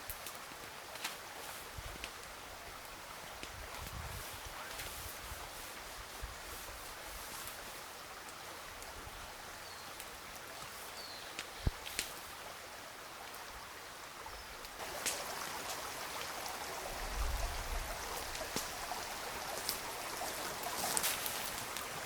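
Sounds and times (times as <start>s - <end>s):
river water rushing: 14.8s - 22.0s.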